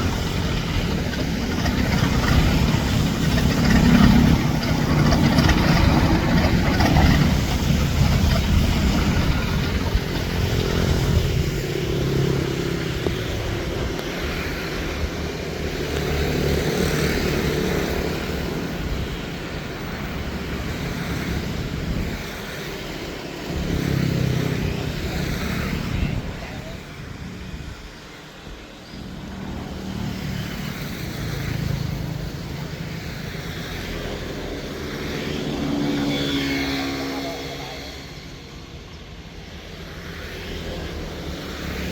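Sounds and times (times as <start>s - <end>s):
motor engine running: 0.0s - 14.3s.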